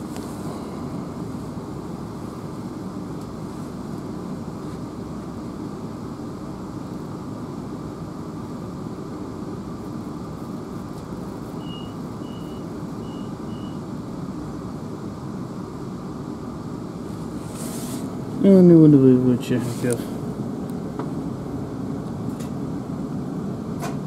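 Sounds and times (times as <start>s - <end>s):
train interior rumble: 0.0s - 24.0s
short high beeps: 11.6s - 13.8s.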